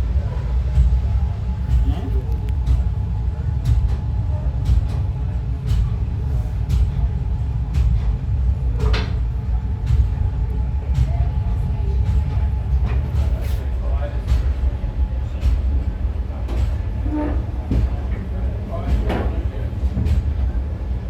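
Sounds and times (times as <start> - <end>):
loud train clank: 0.0 - 21.0
train rumbling: 0.0 - 21.0.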